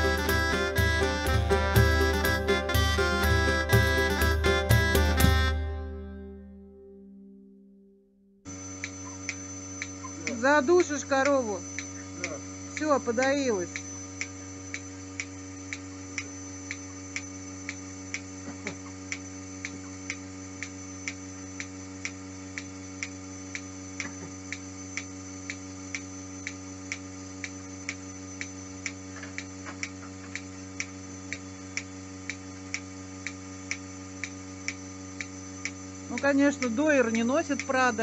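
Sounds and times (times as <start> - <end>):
vacuum line hum: 0.0 - 38.0
milking pulsator clicking: 8.5 - 38.0.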